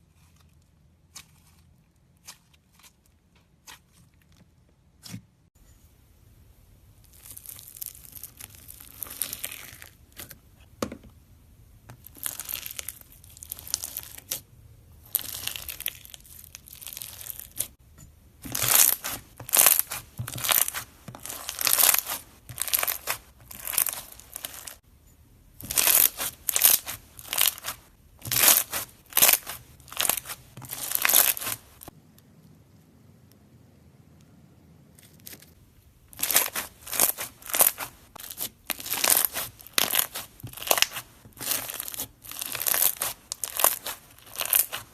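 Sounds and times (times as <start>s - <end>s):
slime crackling and crunching: 7.0s - 10.4s, 11.9s - 14.4s, 15.0s - 17.8s, 18.4s - 24.8s, 25.6s - 32.0s, 34.9s - 44.9s.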